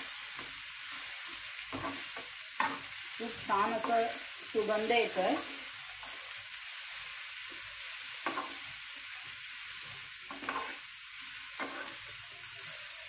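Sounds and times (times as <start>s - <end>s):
food sizzling in hot oil: 0.0s - 13.0s
spatula scraping pan: 0.3s - 6.4s, 9.8s - 12.2s.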